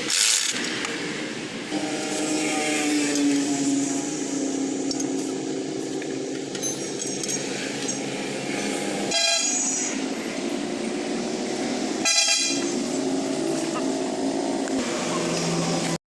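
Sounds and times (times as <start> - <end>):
vehicle engine hum: 0.0 - 16.0
horn honk: 1.7 - 4.7, 9.1 - 10.0, 12.0 - 12.9.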